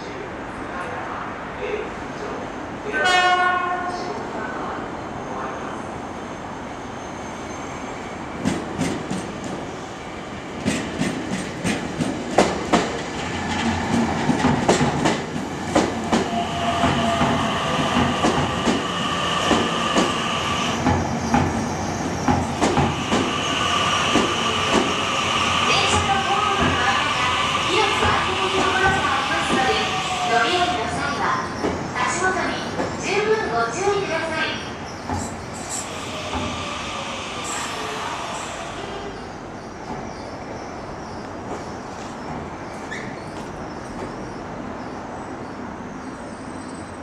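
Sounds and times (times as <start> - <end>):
high brake squealing: 42.8 - 43.4.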